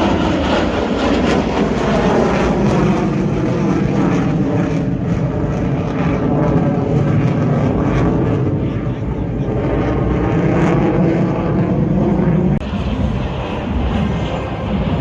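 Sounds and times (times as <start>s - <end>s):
aircraft engines flying past: 0.0s - 15.0s.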